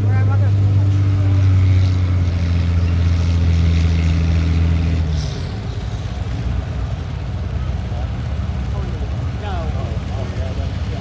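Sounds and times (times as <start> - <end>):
tractor engine humming: 0.0 - 11.0.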